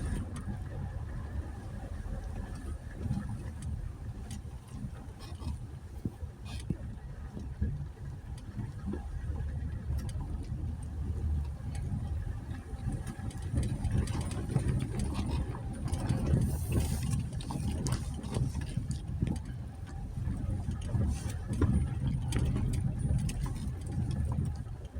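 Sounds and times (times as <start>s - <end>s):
engine running at low revs: 0.0s - 24.9s
knocks and clicks from rough ground: 9.7s - 24.9s.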